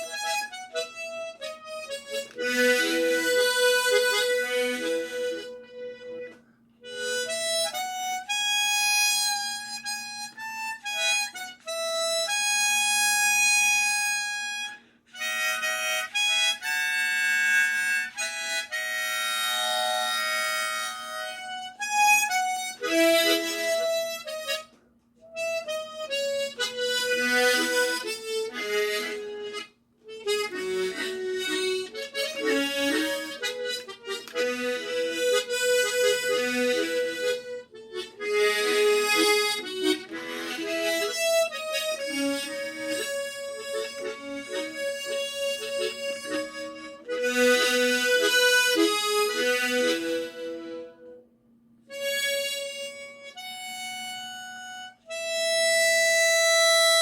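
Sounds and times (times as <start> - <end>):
harmonica playing ballad melody: 0.0 - 57.0.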